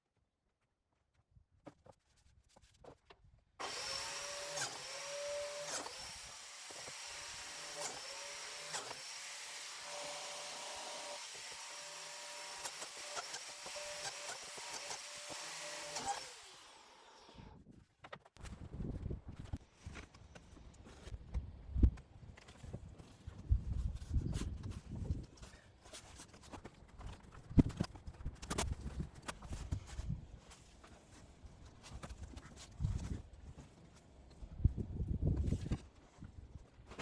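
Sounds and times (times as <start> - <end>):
electric power tool cutting wood: 3.6 - 17.6.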